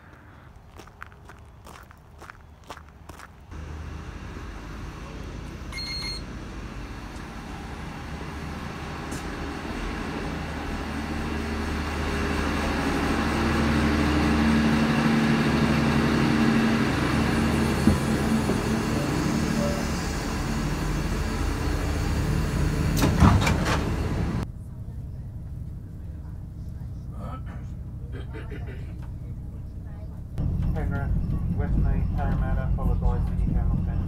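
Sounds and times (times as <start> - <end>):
train running hum: 1.5 - 34.0
electronic beep: 5.7 - 6.3.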